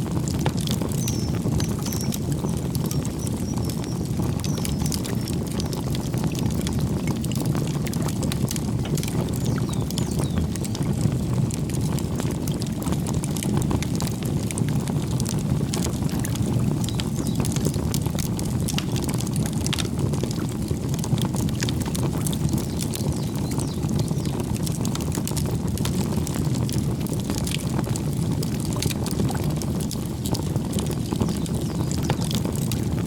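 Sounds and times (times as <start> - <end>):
fire crackles and pops: 0.0 - 33.0
rush of campfire flames: 0.0 - 33.0.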